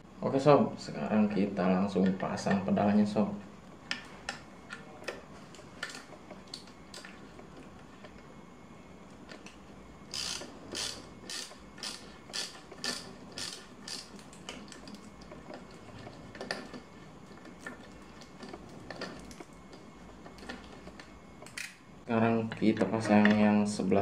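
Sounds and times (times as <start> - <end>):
ratchet tool clicking: 10.1 - 14.2.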